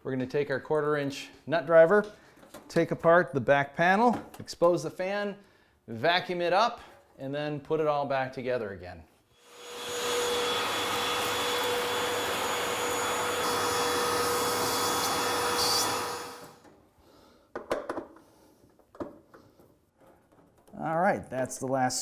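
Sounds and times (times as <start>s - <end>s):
vacuum cleaner running: 9.4s - 16.7s.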